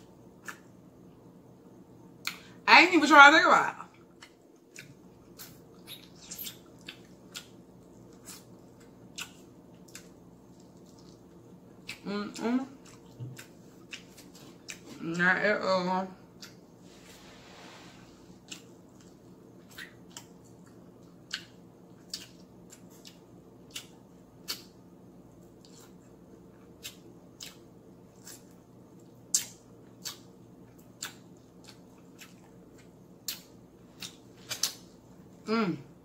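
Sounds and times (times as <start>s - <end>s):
faint low hum: 0.0s - 36.0s
chewing fried chicken: 3.9s - 15.0s, 18.3s - 35.4s.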